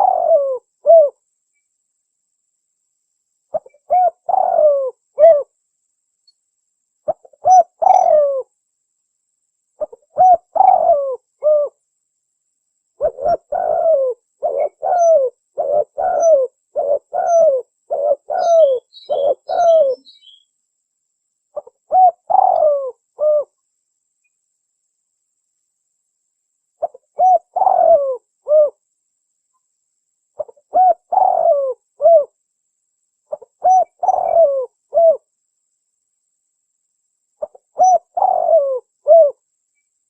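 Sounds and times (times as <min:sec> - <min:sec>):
dove cooing: 0:00.0 - 0:01.2, 0:03.5 - 0:05.5, 0:07.1 - 0:08.5, 0:09.8 - 0:11.8, 0:13.0 - 0:20.4, 0:21.6 - 0:23.6, 0:26.8 - 0:28.8, 0:30.4 - 0:32.4, 0:33.3 - 0:35.3, 0:37.4 - 0:39.4
small bird chirping: 0:00.0 - 0:01.9, 0:03.4 - 0:08.5, 0:09.7 - 0:11.8, 0:12.9 - 0:20.7, 0:21.4 - 0:24.5, 0:26.7 - 0:28.8, 0:29.4 - 0:32.4, 0:33.1 - 0:35.3, 0:37.3 - 0:40.0.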